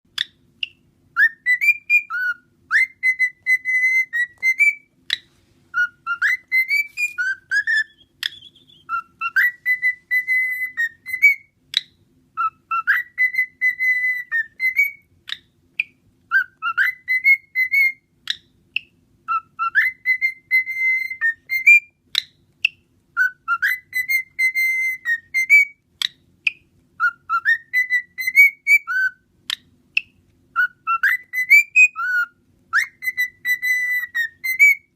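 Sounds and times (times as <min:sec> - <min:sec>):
cockatiel whistling a tune: 0:00.1 - 0:34.9
sharp chirps or clicks: 0:06.6 - 0:09.0.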